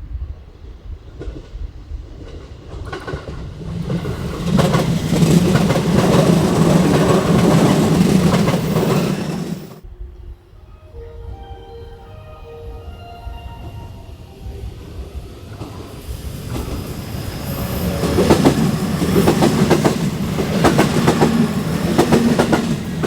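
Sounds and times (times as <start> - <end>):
train wheels clattering over rail joints: 2.2 - 9.8, 15.6 - 23.0.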